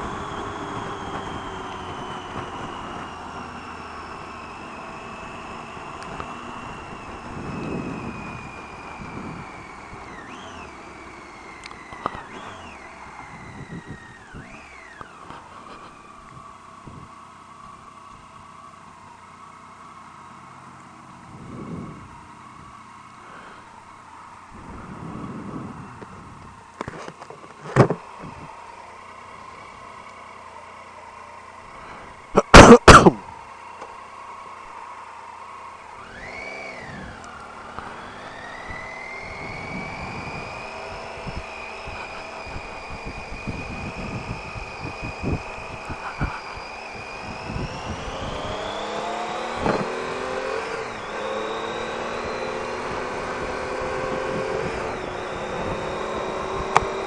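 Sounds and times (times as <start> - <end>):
motorcycle engine accelerating: 0.0 - 57.0
wind noise: 6.1 - 10.2, 12.2 - 14.6, 16.2 - 17.2, 21.3 - 22.7, 24.5 - 26.6, 28.2 - 28.5, 38.6 - 50.0.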